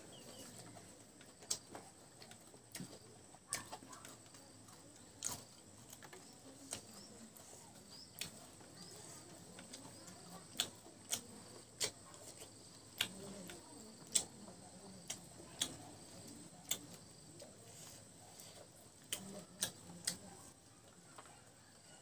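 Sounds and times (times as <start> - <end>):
open-mouthed chewing: 0.0 - 21.5
faint low murmur: 0.0 - 22.0.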